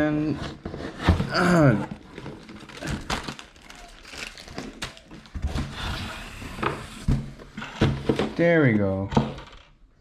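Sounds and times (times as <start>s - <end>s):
plastic packaging crinkling: 2.0s - 5.7s.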